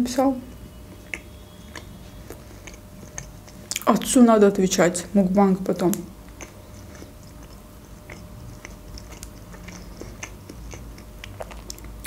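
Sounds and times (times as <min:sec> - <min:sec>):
quiet chewing: 0:00.9 - 0:04.0, 0:06.2 - 0:12.0.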